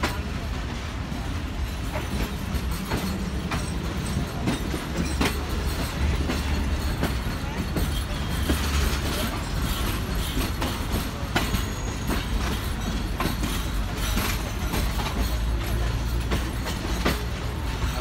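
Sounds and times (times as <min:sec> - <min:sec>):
train coach rumble: 0:00.0 - 0:18.0
wheels clicking over rail joints: 0:00.0 - 0:18.0.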